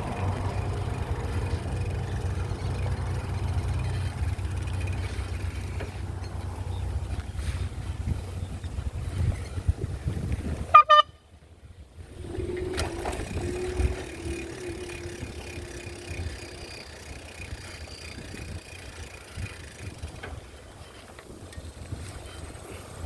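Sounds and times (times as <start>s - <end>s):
vehicle horn beeps: 10.7s - 11.2s.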